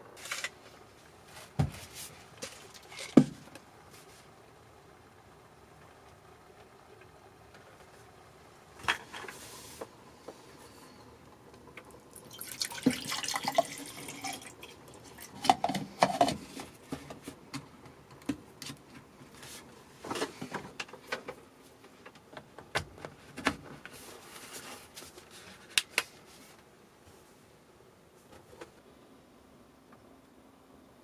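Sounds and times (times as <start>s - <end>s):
liquid pouring and dripping: 12.1s - 15.6s.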